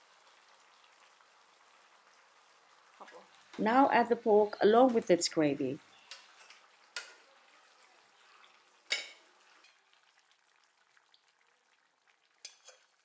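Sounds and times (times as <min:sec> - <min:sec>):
faint sizzling and crackling: 0:00.0 - 0:13.0
spatula clinking against pot: 0:12.4 - 0:12.9.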